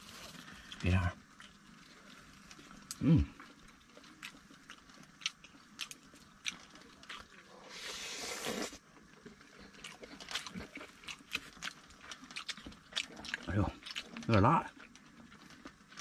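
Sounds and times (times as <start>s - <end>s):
person chewing with wet smacks: 0.2s - 7.6s, 8.2s - 16.0s
breath or slurp hiss: 7.6s - 8.8s.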